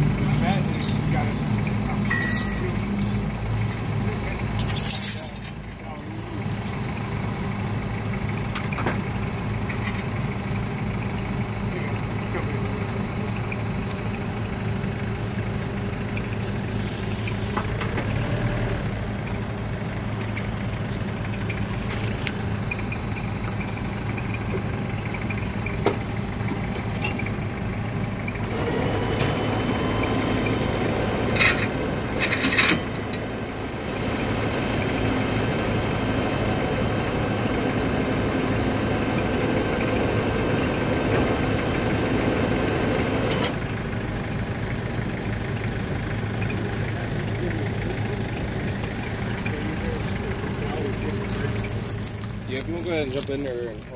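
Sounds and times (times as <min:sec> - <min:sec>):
sharp metallic clanks: 0:00.0 - 0:07.5, 0:31.3 - 0:33.5
vehicle engine idling: 0:00.0 - 0:53.9.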